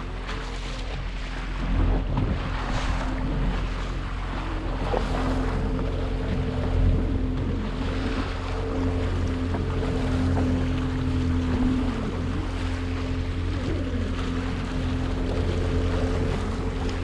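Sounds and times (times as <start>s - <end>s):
motorboat engine idling: 0.0s - 17.0s
sea water noise: 0.0s - 17.0s
wind buffeting microphone: 0.0s - 17.0s.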